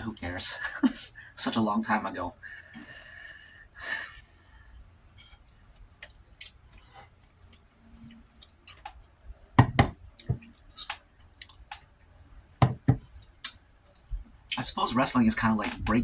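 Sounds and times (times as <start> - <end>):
chewing: 6.0 - 9.2, 10.3 - 11.9.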